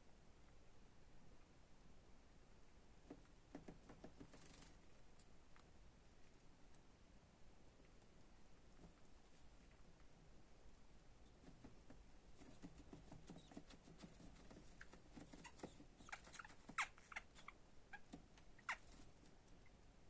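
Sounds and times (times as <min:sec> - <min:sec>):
light scratching and tapping: 0:03.0 - 0:06.8, 0:07.9 - 0:10.1, 0:11.2 - 0:19.6
baby budgerigars chirping: 0:14.5 - 0:19.1.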